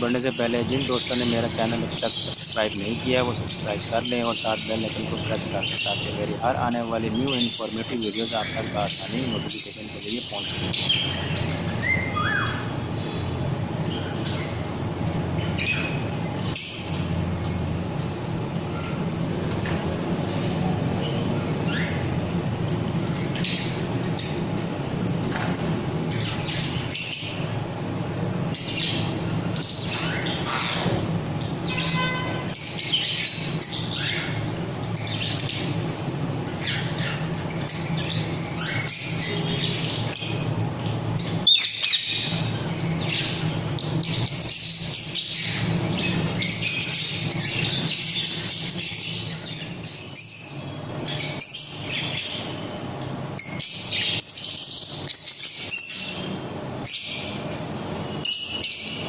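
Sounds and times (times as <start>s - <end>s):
parrots chirping and chattering: 0.0s - 59.0s
steady low hum: 0.0s - 59.0s.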